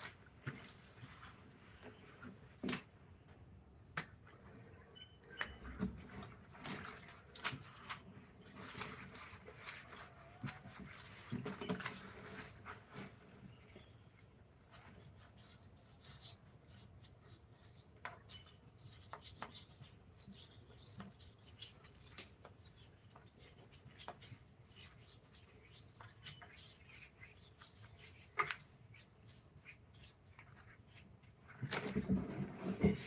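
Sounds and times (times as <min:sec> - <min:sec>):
faint light taps and scrapes: 0:14.7 - 0:33.0.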